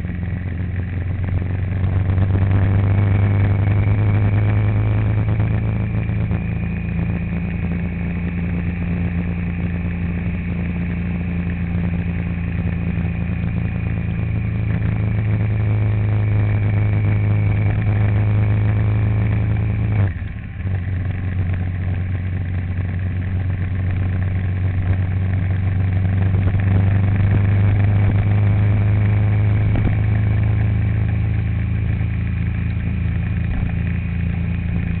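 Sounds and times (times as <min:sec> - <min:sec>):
vehicle engine hum: 0:00.0 - 0:35.0.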